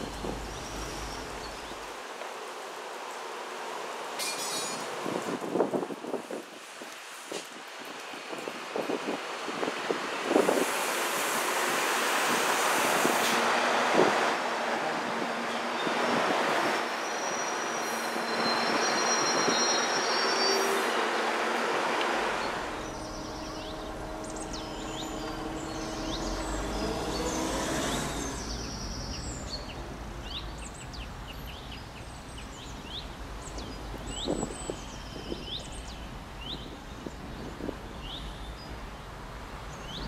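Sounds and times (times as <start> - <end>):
train passing with wheel squeal: 4.1 - 5.0, 10.4 - 29.7
birds chirping: 22.1 - 38.8.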